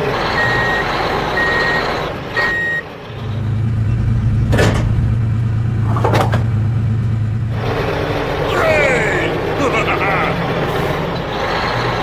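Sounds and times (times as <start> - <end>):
low engine hum: 0.0 - 12.0
reversing alarm beep: 0.3 - 2.8.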